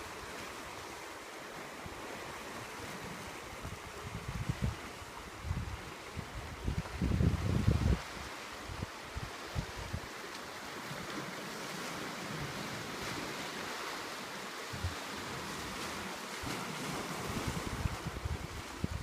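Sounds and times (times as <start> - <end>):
sea waves washing onto shore: 0.0 - 19.0
wind buffeting microphone: 3.6 - 10.1, 14.7 - 19.0.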